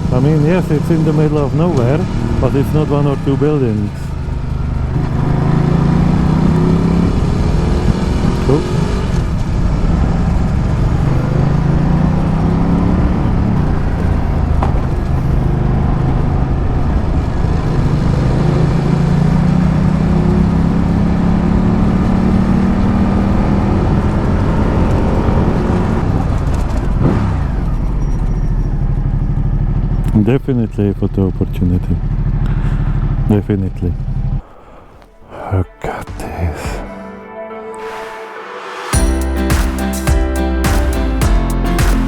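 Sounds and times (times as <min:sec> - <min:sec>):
motorcycle engine revving: 0:00.0 - 0:28.0
wind and road noise: 0:00.0 - 0:30.6, 0:31.3 - 0:35.2.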